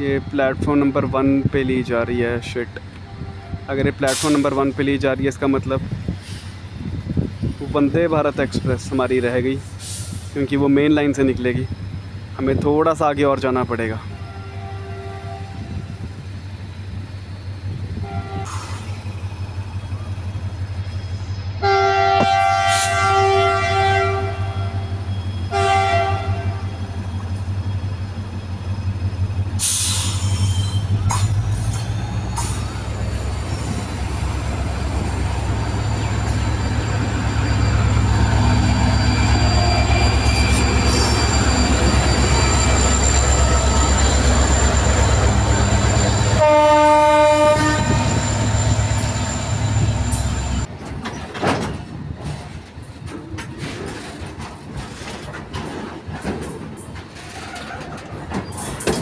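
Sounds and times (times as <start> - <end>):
train rolling over rails: 0.0 - 59.0
locomotive horn blasts: 14.1 - 15.8, 18.0 - 18.5, 21.6 - 24.9, 25.5 - 26.8, 46.3 - 48.5
diesel engine rumble: 26.5 - 58.8.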